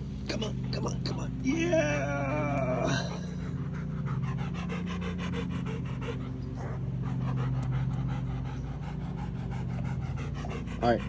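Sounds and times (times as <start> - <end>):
steady low hum: 0.0 - 11.0
dog panting rapidly: 3.0 - 11.0.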